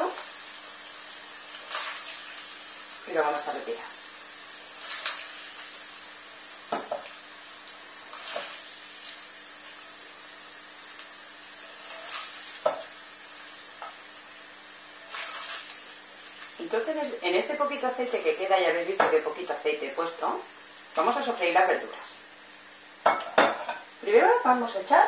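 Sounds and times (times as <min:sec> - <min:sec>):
tofu sizzling in hot oil: 0:00.0 - 0:25.0
spoon scraping and knocking pan: 0:06.7 - 0:07.1, 0:11.8 - 0:13.0, 0:23.0 - 0:23.9.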